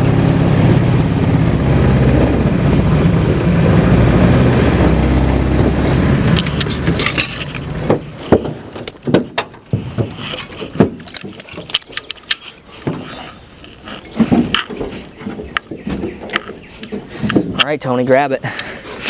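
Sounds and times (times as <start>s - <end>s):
boat motor running: 0.0s - 17.4s
sharp clicks and knocks: 6.3s - 17.8s.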